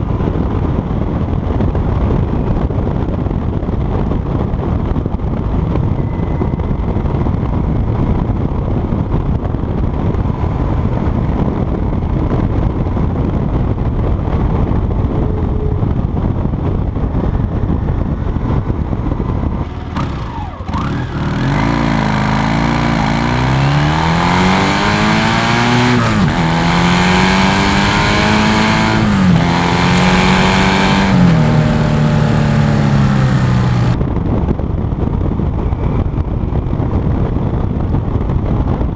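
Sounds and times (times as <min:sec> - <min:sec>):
motorcycle accelerating through gears: 0:19.6 - 0:34.0.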